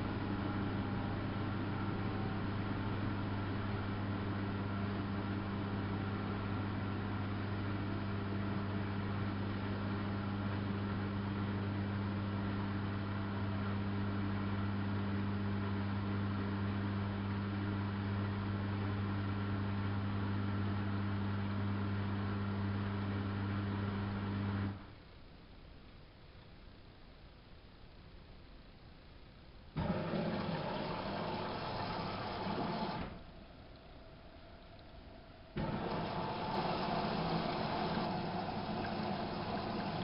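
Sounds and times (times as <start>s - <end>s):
washing machine humming: 0.0s - 24.8s, 29.8s - 40.0s.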